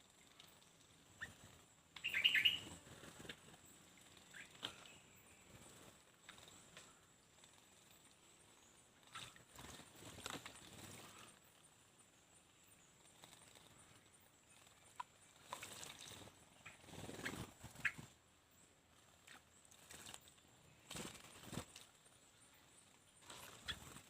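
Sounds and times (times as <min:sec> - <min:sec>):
short high bird chirps: 0:02.0 - 0:02.7
birds splashing in water: 0:02.0 - 0:03.4, 0:09.0 - 0:11.3, 0:14.6 - 0:18.1, 0:19.1 - 0:21.9.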